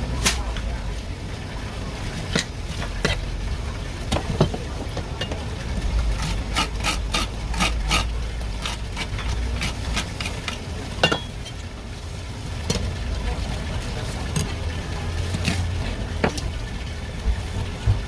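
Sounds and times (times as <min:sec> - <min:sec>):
fish scraping on cutting board: 0:06.1 - 0:10.6.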